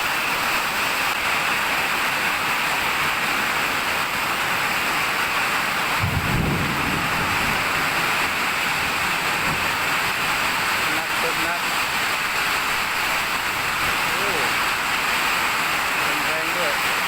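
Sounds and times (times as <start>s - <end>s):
rain falling: 0.0s - 17.0s
thunder rumble: 5.9s - 10.9s.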